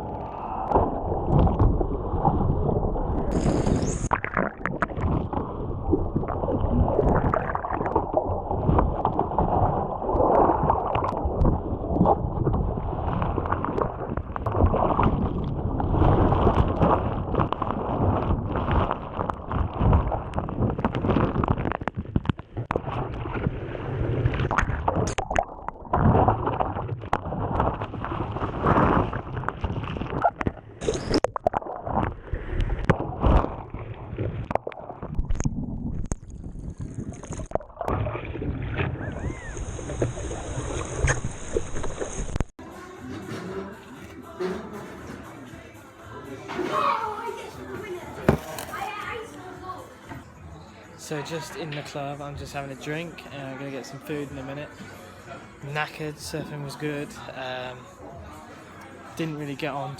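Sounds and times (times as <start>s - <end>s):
surf water churning: 0.0s - 3.4s, 4.1s - 35.4s.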